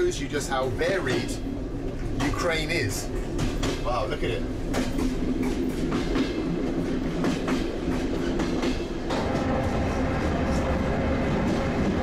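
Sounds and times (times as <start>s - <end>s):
train rumble: 0.0s - 12.0s
train wheels clacking over rail joints: 0.6s - 9.8s.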